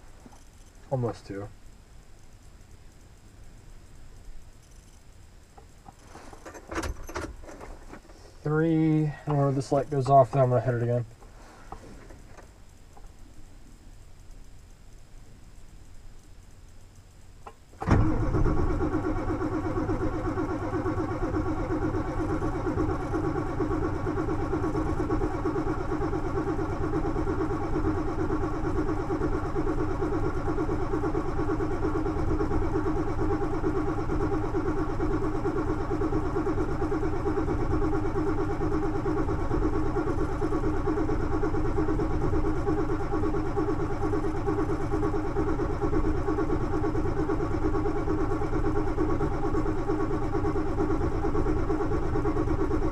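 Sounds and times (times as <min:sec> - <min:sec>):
diesel engine idling: 0:17.9 - 0:52.9.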